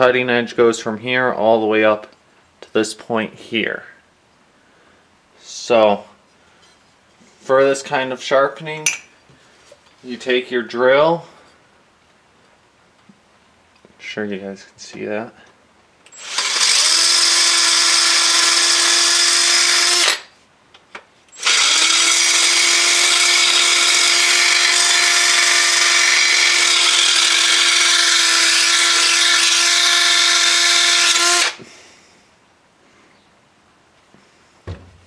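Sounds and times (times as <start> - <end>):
electric drill grinding metal blade: 16.1 - 20.3, 21.3 - 31.6.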